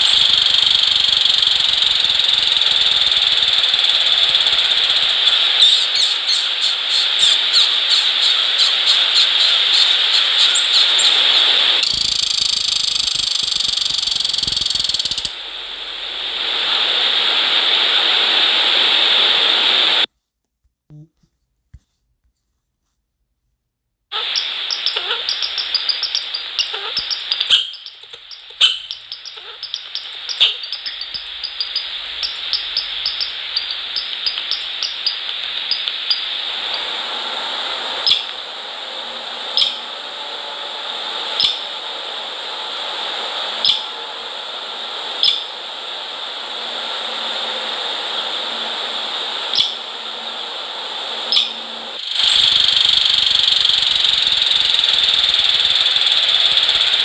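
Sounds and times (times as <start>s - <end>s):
steady hiss: 0.0s - 20.1s, 24.1s - 57.0s
small animals squeaking and chirping: 24.2s - 36.2s.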